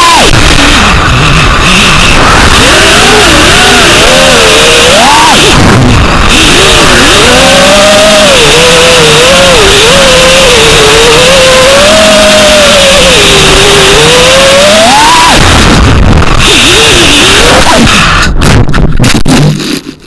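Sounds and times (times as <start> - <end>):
quadcopter motors whining: 2.3 - 5.5, 6.3 - 15.2.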